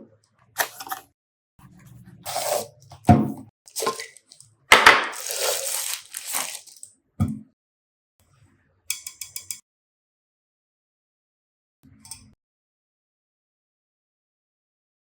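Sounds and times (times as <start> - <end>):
packaging rustling and tearing: 3.7 - 6.9.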